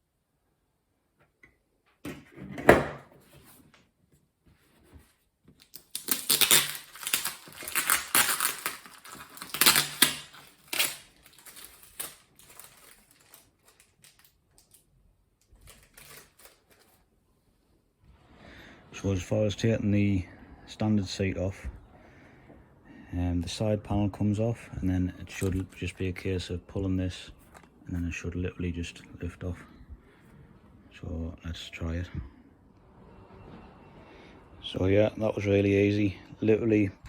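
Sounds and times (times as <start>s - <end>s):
packaging crinkling and tearing: 5.6s - 17.1s, 25.3s - 26.0s.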